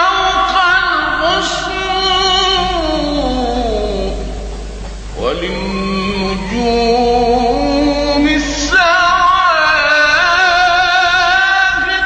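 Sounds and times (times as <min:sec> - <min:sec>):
man singing religious chant: 0:00.0 - 0:04.4, 0:05.2 - 0:12.0.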